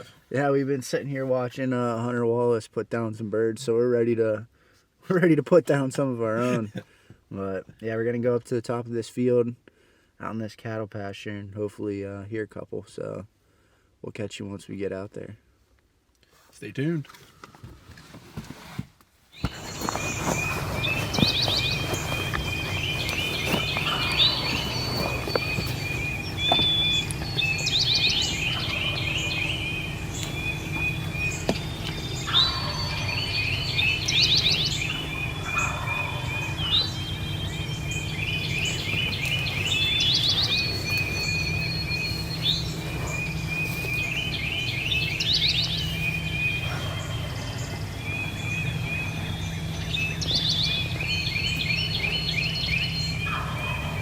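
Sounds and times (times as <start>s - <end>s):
songbirds singing trills: 19.3s - 54.0s
distant low rattling call: 19.4s - 54.0s
steady low rumble: 19.5s - 54.0s.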